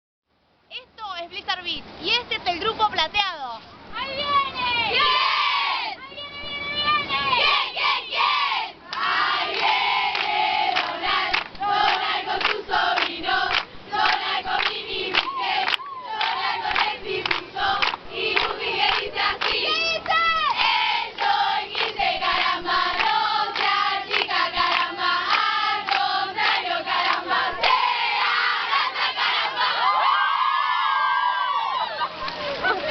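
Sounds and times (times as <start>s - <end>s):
young voices chanting and singing: 4.0s - 30.4s
shouts and shrieks: 29.7s - 32.1s.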